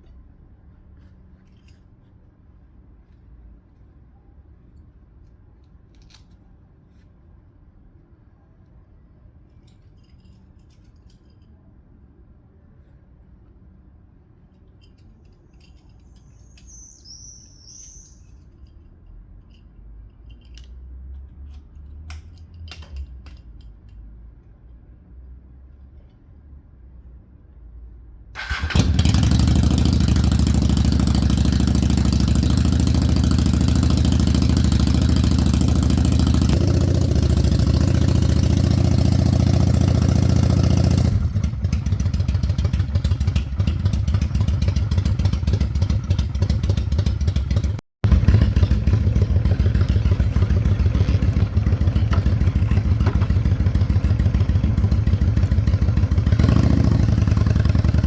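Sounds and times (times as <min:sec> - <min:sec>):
motorcycle engine idling: 0:28.4 - 0:58.0.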